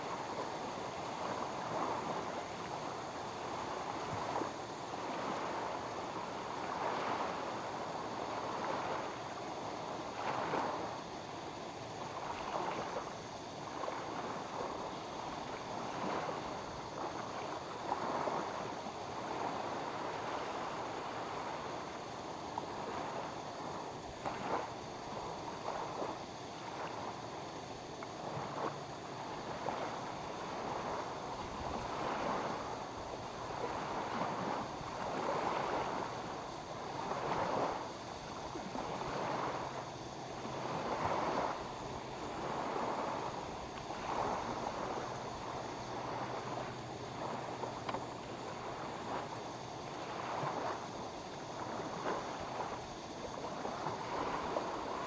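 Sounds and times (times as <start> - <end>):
small waves lapping: 0.0 - 55.0.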